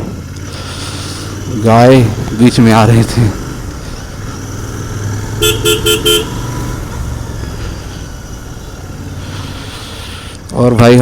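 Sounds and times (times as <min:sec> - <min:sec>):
motorcycle engine running: 0:00.0 - 0:11.0
vehicle horn tooting: 0:05.3 - 0:06.6.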